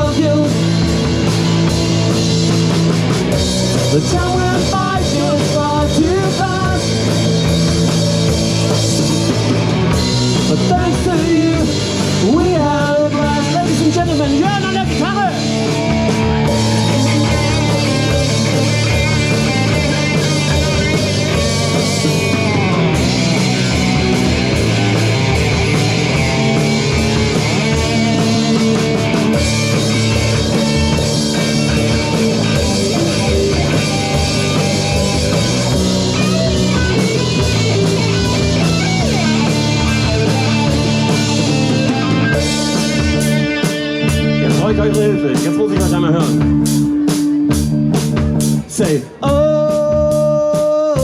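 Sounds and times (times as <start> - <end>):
bass: 0.0 - 51.0
drum kit: 0.0 - 51.0
electric guitar solo: 14.3 - 47.9.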